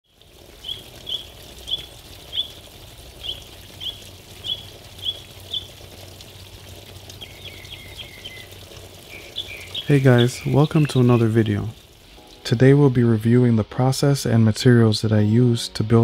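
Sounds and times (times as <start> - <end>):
small bird chirping: 0.6 - 2.6, 3.2 - 5.8, 7.2 - 11.4.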